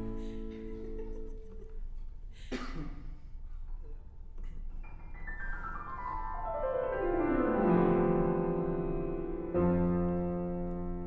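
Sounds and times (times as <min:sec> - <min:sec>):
low piano chord: 0:00.0 - 0:01.5, 0:06.2 - 0:11.0.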